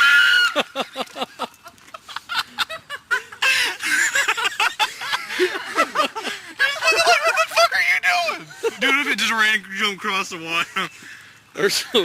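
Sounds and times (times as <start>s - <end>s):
people laughing and shrieking: 0.0s - 9.1s.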